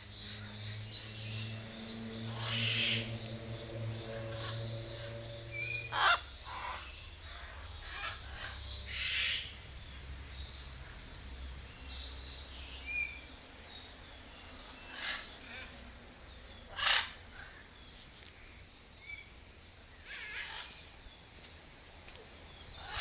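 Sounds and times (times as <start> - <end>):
low steady hum: 0.0 - 16.6
birds squawking: 0.2 - 9.5.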